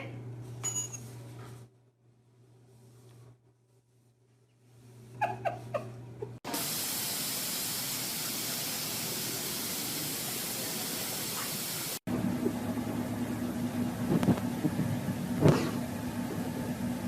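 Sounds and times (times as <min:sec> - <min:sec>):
low steady hum: 0:12.1 - 0:17.0.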